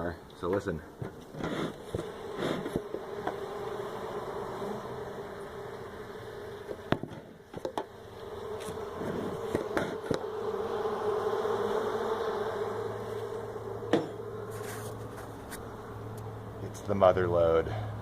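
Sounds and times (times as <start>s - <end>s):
honeybee colony humming: 0.0s - 18.0s.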